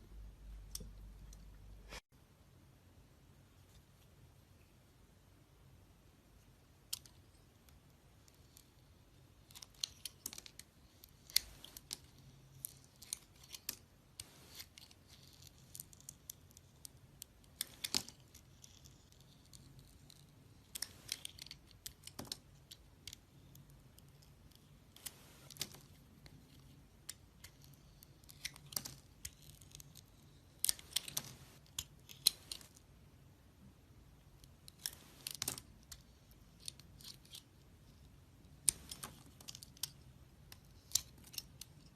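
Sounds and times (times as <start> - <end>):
knife carving soap: 8.4 - 22.7.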